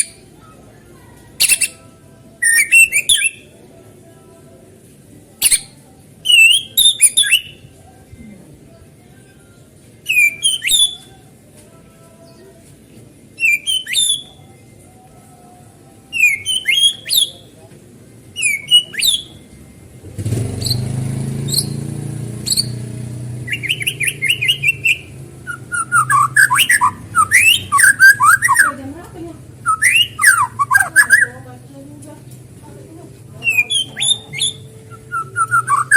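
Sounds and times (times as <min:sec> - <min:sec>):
bird whistling and chirping: 0:02.4 - 0:03.4, 0:06.3 - 0:07.6, 0:10.1 - 0:11.1, 0:13.4 - 0:14.4, 0:16.1 - 0:17.4, 0:18.4 - 0:19.4, 0:22.5 - 0:22.8, 0:23.5 - 0:28.8, 0:29.6 - 0:31.3, 0:33.4 - 0:35.9.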